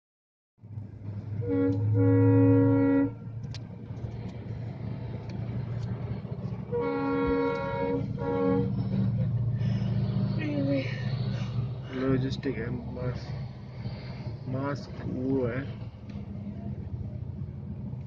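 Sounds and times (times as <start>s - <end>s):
train rumbling: 0.6s - 18.0s
train horn blasts: 1.3s - 3.4s, 6.6s - 9.1s.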